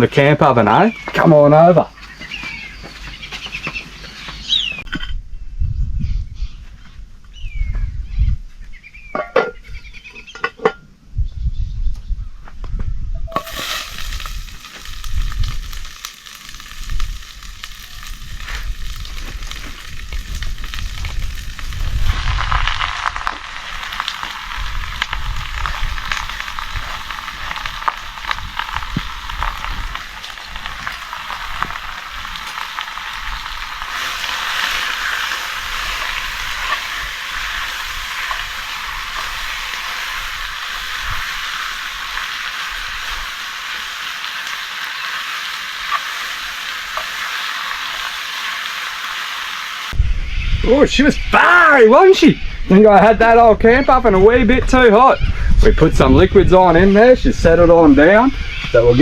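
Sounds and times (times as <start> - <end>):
meat sizzling in a pot: 13.3 - 50.0.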